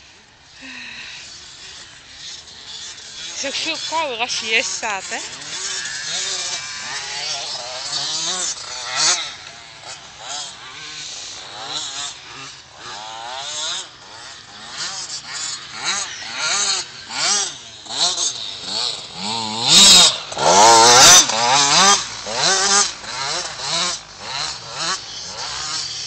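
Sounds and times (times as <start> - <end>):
two-stroke motorbike engine revving: 0.0 - 26.0.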